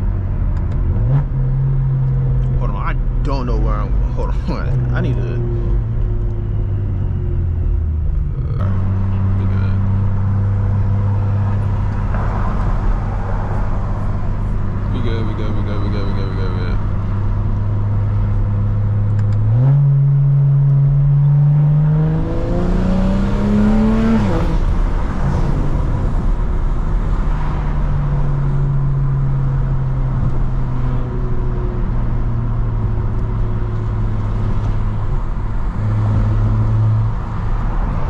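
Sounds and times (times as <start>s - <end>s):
car engine revving and cruising: 0.0s - 38.0s.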